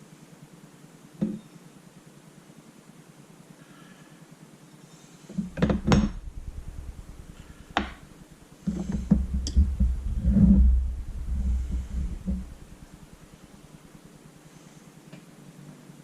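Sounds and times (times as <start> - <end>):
low rumbling handling noise: 5.4 - 14.3.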